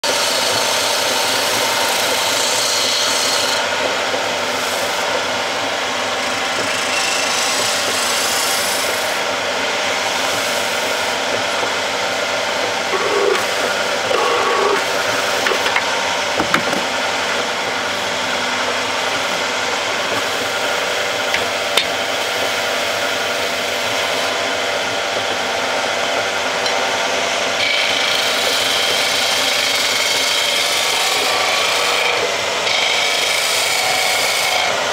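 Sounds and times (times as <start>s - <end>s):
wood lathe motor hum: 0.0s - 34.9s
turning tool scraping wood: 0.2s - 3.7s, 6.0s - 9.2s, 12.7s - 17.0s
short knocks: 15.4s - 17.0s.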